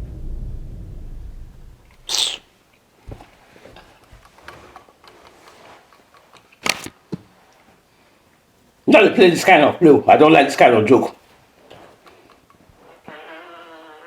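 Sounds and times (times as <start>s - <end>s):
low rumble: 0.0s - 2.1s
loud hissing burst: 0.0s - 2.5s.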